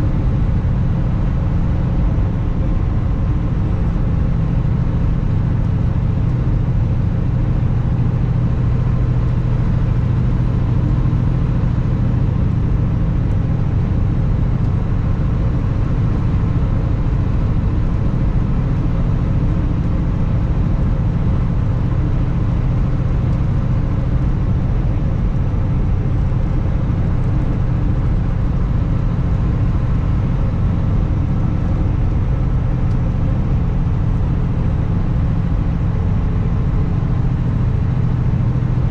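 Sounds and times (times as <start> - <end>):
road and wind noise: 0.0 - 38.9
truck diesel engine running: 0.0 - 38.9.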